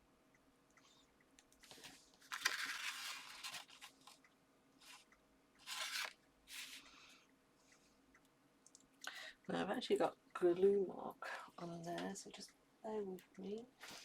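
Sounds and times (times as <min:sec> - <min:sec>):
paper and card rustling: 0:01.6 - 0:04.2, 0:05.6 - 0:06.8.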